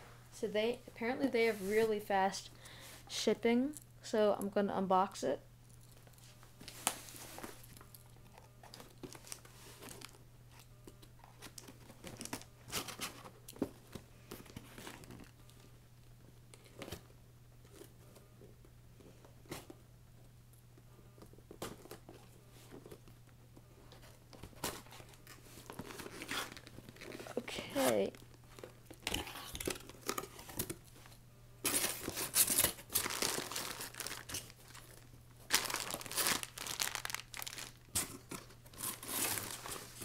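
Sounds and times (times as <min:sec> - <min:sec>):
steady low hum: 0:00.0 - 0:40.0
packaging crinkling and tearing: 0:24.5 - 0:30.8, 0:31.7 - 0:40.0.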